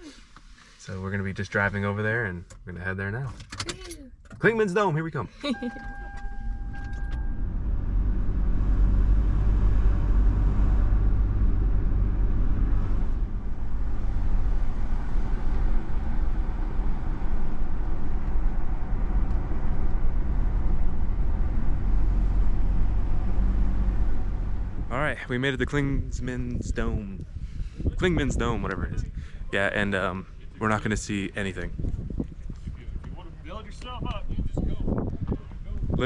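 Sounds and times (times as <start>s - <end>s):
car engine and tyre rumble: 0.0s - 36.0s
steady beep: 5.4s - 7.5s.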